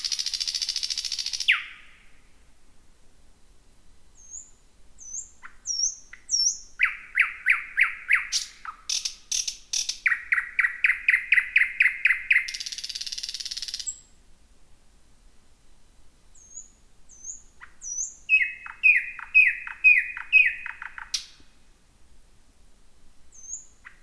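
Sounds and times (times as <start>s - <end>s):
nightingale singing: 0.0s - 2.2s, 4.2s - 14.2s, 16.3s - 21.6s, 23.3s - 24.0s.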